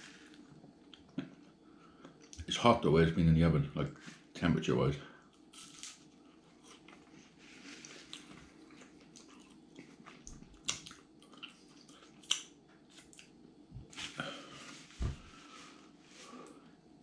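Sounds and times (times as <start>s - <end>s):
quiet chewing: 5.3s - 14.8s
pastry crust crackling: 5.4s - 13.3s.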